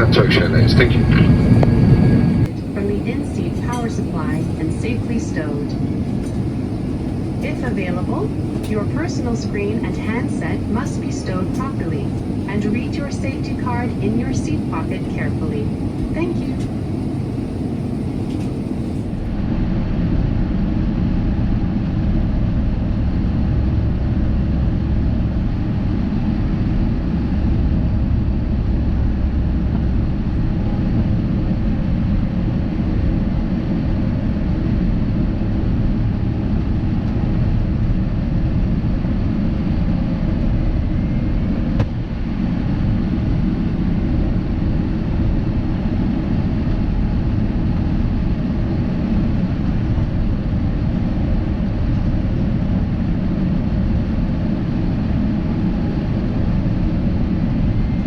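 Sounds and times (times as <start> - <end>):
airflow over fuselage: 0.0 - 58.0
airplane cabin engine rumble: 0.0 - 58.0.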